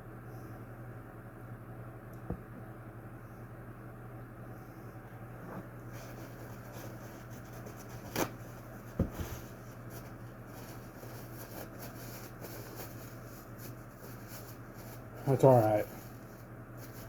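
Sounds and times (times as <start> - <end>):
steady low hum: 0.0 - 17.0
rubbing and handling noises: 5.1 - 17.0.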